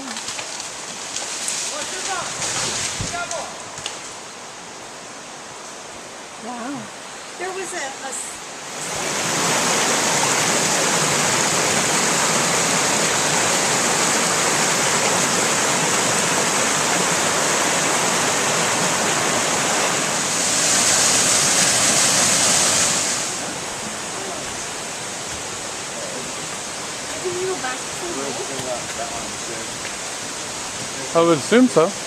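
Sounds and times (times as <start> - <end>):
rushing water: 0.0 - 32.0.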